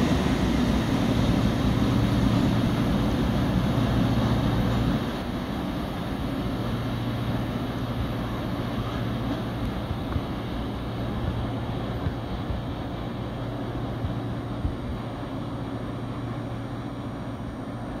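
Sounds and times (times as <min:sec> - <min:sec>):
freight train rumbling: 0:00.0 - 0:18.0.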